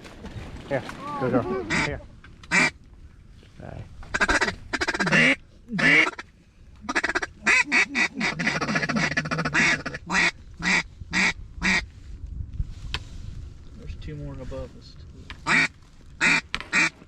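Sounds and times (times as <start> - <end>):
duck call quacking: 2.5 - 2.8, 4.1 - 6.2, 6.9 - 11.8, 15.5 - 17.0.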